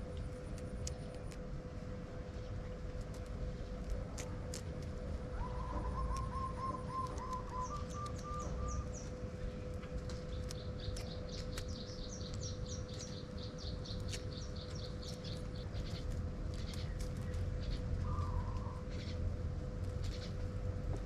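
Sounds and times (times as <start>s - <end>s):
steady hum and low rumble: 0.0s - 21.0s
small birds chirping: 5.3s - 21.0s.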